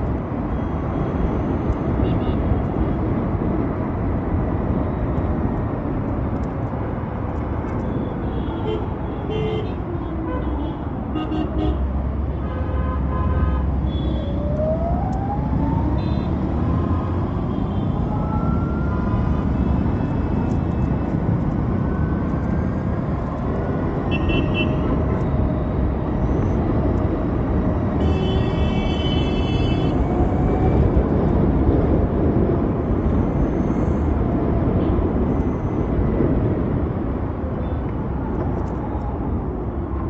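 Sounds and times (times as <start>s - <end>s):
wind and road noise: 0.0s - 40.0s
vehicle horns tooting: 28.0s - 29.9s.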